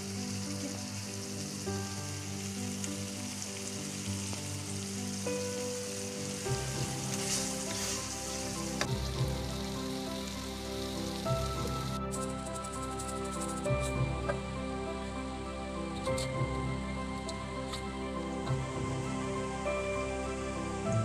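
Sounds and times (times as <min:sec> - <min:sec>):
background music: 0:00.0 - 0:21.0
food sizzling in oil: 0:00.0 - 0:21.0
wooden spatula stirring: 0:06.6 - 0:09.4.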